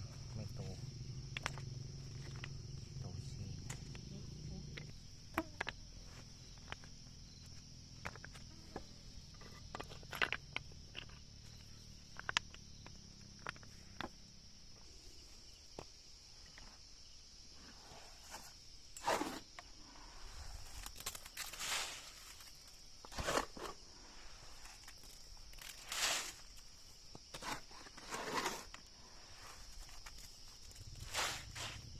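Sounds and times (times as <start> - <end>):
insects chirring: 0.0 - 31.9
rustling scrapes: 17.7 - 31.9.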